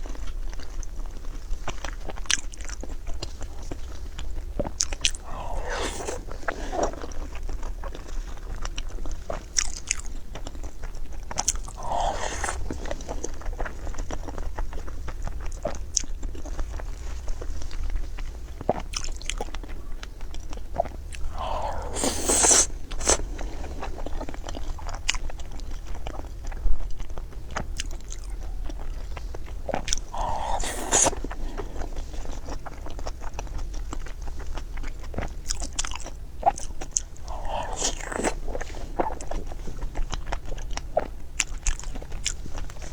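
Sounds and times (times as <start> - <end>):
person chewing with wet smacks: 0.0 - 42.9
crunching bites: 4.8 - 7.0, 11.4 - 13.3, 21.1 - 23.9, 29.7 - 31.9, 37.0 - 39.1.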